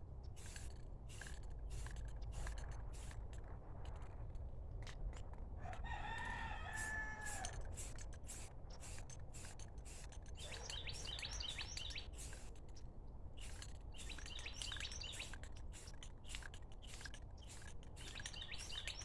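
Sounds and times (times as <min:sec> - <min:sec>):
rooster crowing: 0:05.6 - 0:07.7
small birds chirping: 0:09.9 - 0:19.0.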